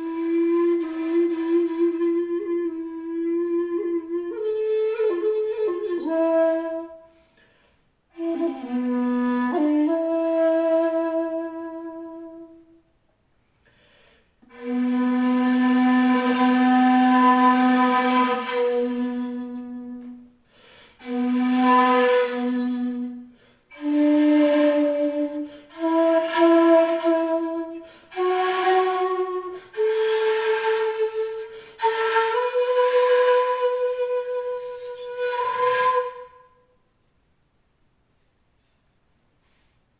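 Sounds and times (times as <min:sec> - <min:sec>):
shakuhachi flute playing: 0:00.0 - 0:07.3, 0:08.1 - 0:12.8, 0:14.5 - 0:36.8.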